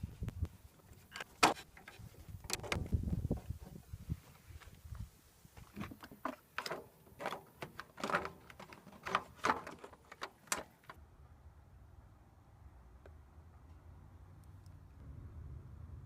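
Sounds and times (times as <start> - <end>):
hard parts clicking and knocking: 5.6 - 11.0.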